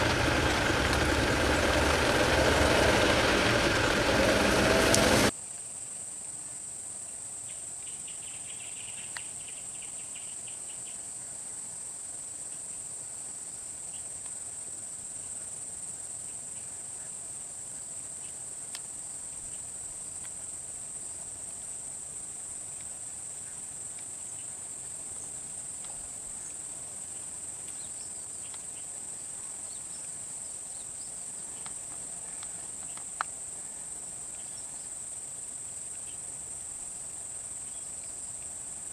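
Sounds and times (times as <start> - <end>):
insects chirping: 0.0 - 6.6, 7.2 - 38.9.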